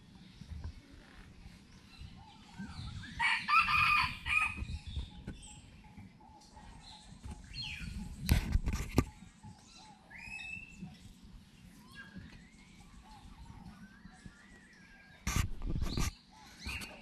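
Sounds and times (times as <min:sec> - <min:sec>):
faint bird chirps: 0:00.0 - 0:17.0
rough crowing bird call: 0:03.1 - 0:04.7.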